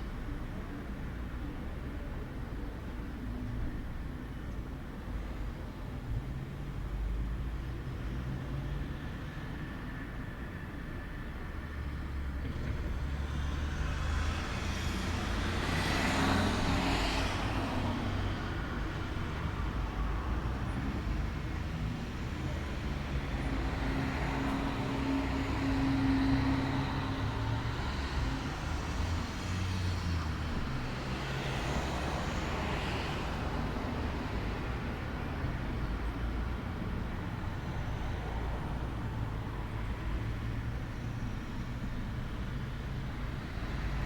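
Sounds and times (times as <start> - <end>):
low rumble of road traffic: 0.0 - 44.0
vehicles passing by: 11.8 - 44.0.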